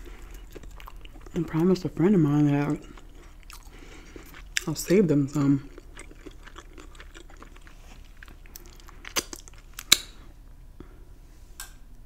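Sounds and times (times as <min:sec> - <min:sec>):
chewing crispy fried chicken: 0:00.0 - 0:10.2.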